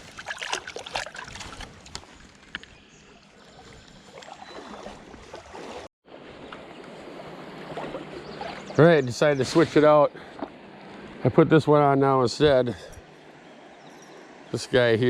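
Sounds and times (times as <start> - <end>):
small clicks and splashes: 0.0 - 5.9.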